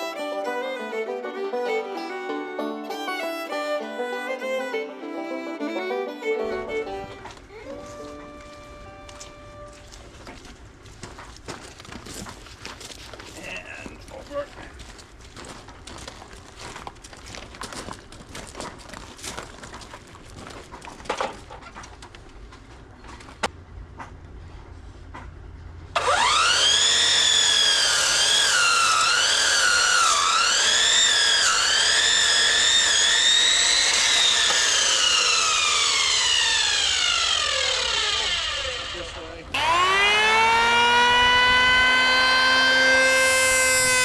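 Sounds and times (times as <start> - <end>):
electric power saw cutting wood: 0.0 - 10.0, 26.0 - 44.0.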